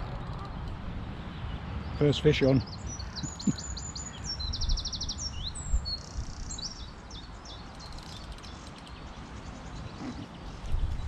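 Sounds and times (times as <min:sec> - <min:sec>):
songbird chirps and trills: 0:00.0 - 0:11.0
wind rumble on microphone: 0:04.2 - 0:11.0.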